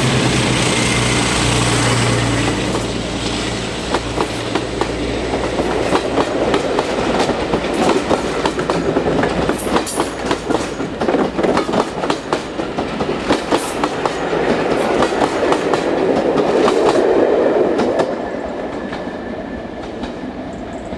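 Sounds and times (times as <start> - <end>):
train wheels clattering over rail joints: 2.5 - 17.1.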